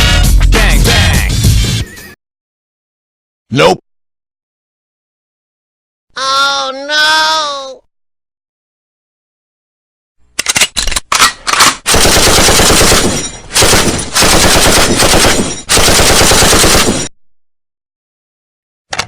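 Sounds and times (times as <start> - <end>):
machine gun fire: 11.8 - 17.1.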